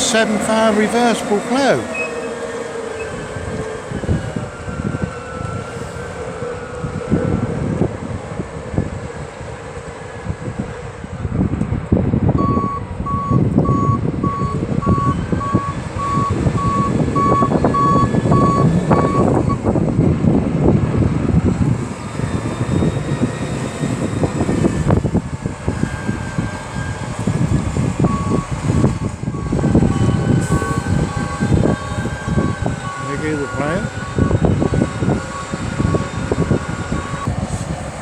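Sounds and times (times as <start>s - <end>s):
tractor engine running: 0.0s - 5.4s, 13.2s - 38.0s
reversing alarm beeping: 0.0s - 6.6s, 12.4s - 19.8s, 21.8s - 37.3s.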